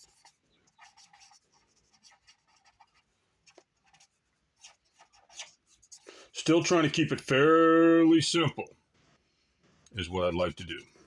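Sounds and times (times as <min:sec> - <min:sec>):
pen scratching on paper: 0:00.0 - 0:06.1.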